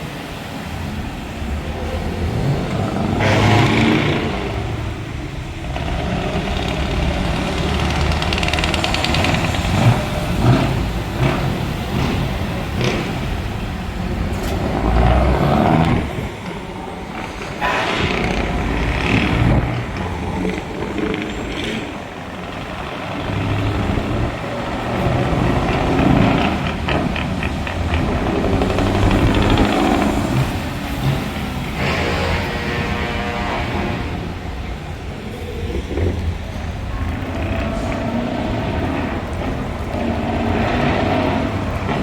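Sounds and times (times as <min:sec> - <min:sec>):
truck engine running: 0:00.0 - 0:42.0.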